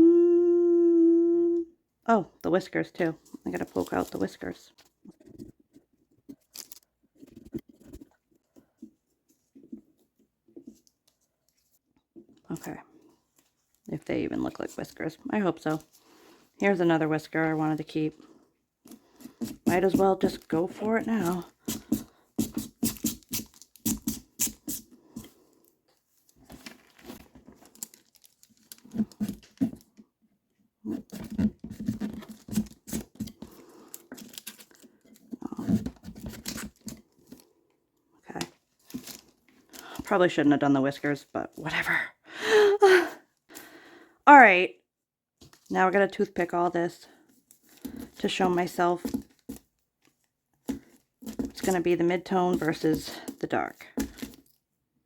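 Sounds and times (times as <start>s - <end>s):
carving tool scratching pumpkin: 19.0s - 25.3s.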